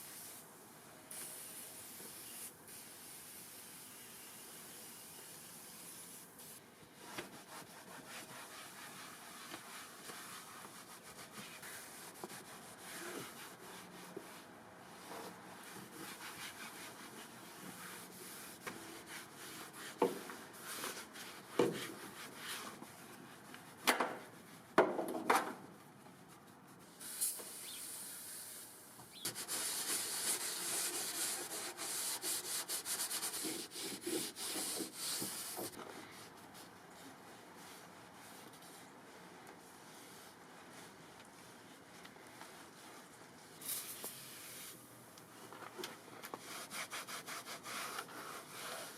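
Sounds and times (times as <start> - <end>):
hand scrubbing a surface: 7.0 - 23.1, 29.3 - 36.2, 46.4 - 48.9.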